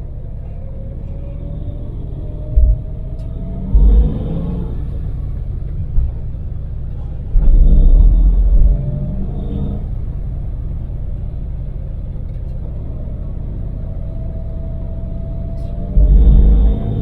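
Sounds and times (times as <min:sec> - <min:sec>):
loud low rumble: 0:00.0 - 0:17.0
van engine and road noise: 0:00.0 - 0:17.0
low bump: 0:02.2 - 0:11.3, 0:15.7 - 0:17.0.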